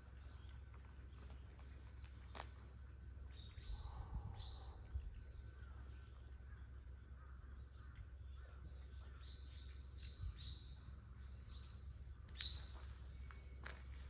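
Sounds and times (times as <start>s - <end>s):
faint bird chirps: 0.0s - 14.0s
low steady rumble: 0.0s - 14.0s.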